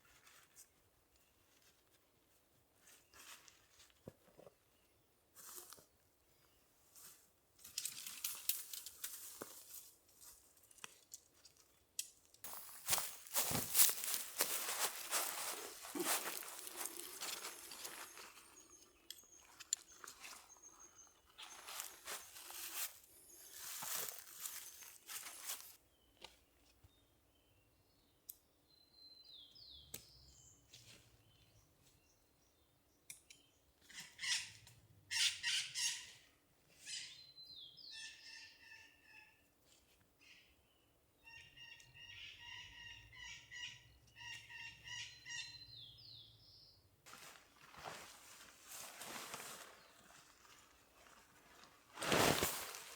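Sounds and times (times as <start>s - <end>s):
rustling noise: 12.5s - 18.5s, 47.1s - 52.9s.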